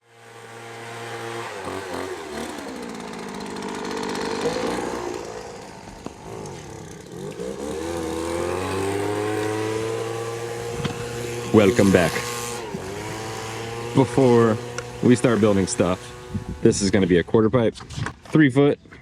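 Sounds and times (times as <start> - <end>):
engine changing speed: 0.2 - 17.3.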